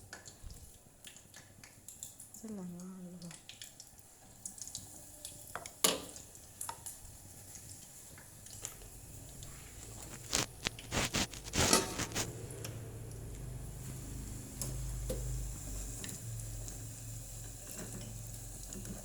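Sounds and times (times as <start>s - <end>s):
shrimp squishing in wet batter: 0.0s - 12.4s.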